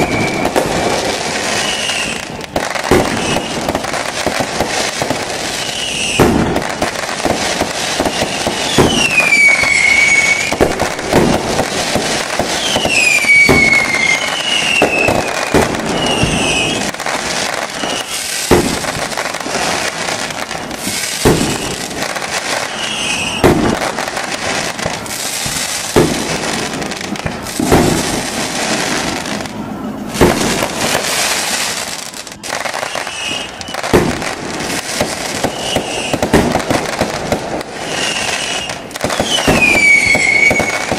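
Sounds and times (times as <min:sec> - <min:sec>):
falling whistles: 0:00.0 - 0:00.6, 0:01.4 - 0:02.3, 0:03.0 - 0:03.7, 0:05.5 - 0:06.3, 0:07.9 - 0:10.7, 0:12.5 - 0:18.4, 0:20.9 - 0:21.9, 0:22.6 - 0:23.6, 0:32.7 - 0:34.0, 0:35.4 - 0:36.2, 0:37.8 - 0:40.9
fireworks bursting: 0:00.0 - 0:40.9.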